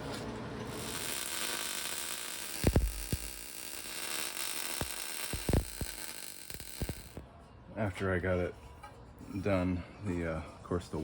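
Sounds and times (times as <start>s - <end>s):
arc welding hiss: 0.7s - 7.2s.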